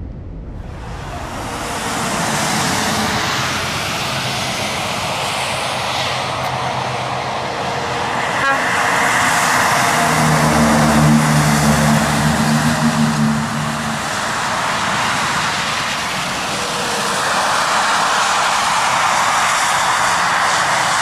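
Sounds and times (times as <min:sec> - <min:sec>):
truck engine low rumble: 0:00.0 - 0:18.4.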